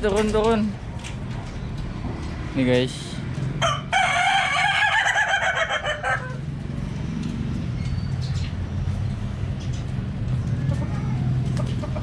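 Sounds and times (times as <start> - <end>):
rooster crowing: 3.6 - 6.5.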